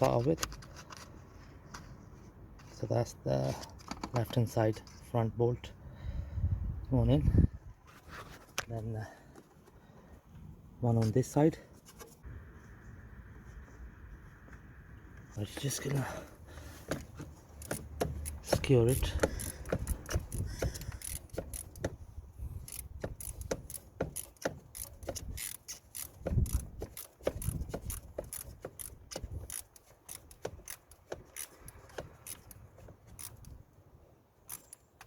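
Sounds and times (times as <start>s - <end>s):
hand tool clicking on metal bolt: 16.9s - 22.0s, 22.6s - 33.6s, 34.5s - 35.0s.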